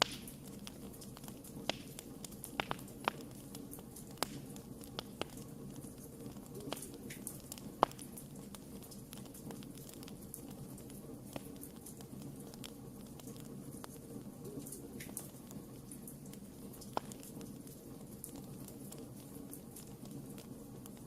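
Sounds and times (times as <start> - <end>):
campfire crackling and popping: 0.0 - 21.0
low rush of flames: 0.0 - 21.0.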